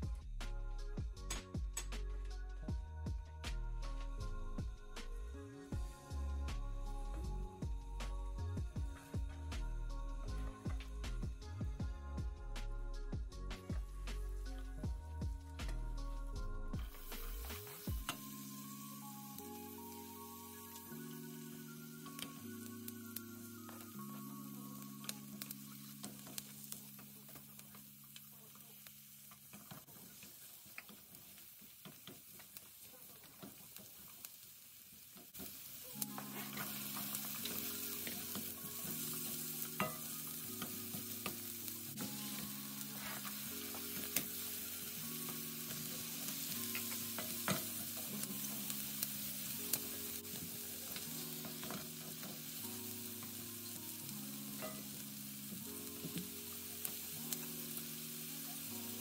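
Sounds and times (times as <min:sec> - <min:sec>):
vegetables sizzling in butter: 0:13.6 - 0:59.0
spatula clicking and scraping pan: 0:54.6 - 0:55.0.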